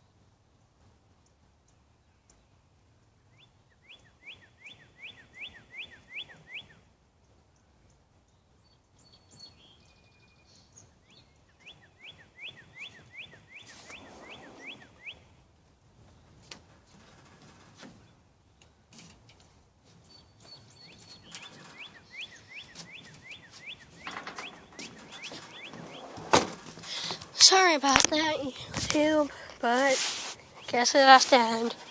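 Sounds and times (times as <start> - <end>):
songbird chirping: 1.2 - 16.7, 19.8 - 31.9
faint rustle: 13.5 - 31.9.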